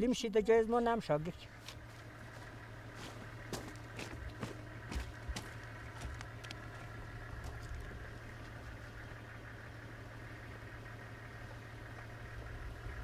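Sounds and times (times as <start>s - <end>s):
vehicle engine idling: 0.0s - 13.0s
footsteps on loose stones: 1.6s - 8.9s.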